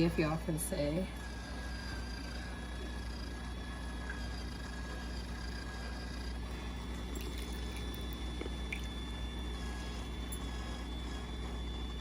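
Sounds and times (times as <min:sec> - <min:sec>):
small appliance motor humming: 0:00.0 - 0:12.0
light liquid sounds: 0:07.0 - 0:09.0.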